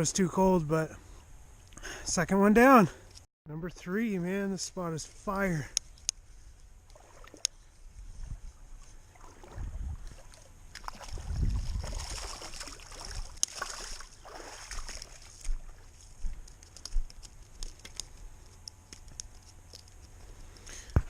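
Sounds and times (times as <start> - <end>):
water splashing and sloshing: 6.8 - 18.0
small clicks and knocks: 16.4 - 21.0.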